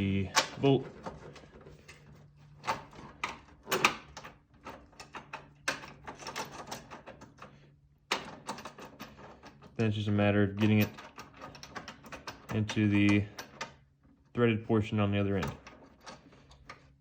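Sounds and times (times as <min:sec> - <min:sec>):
metallic clicks and knocks: 0:10.6 - 0:13.8.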